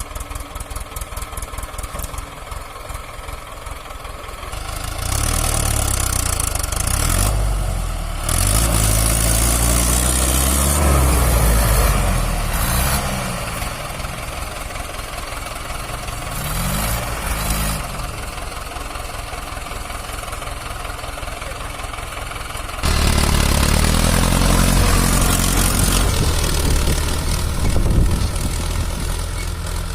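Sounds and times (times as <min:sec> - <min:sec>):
tractor diesel engine revving: 0:00.0 - 0:29.9.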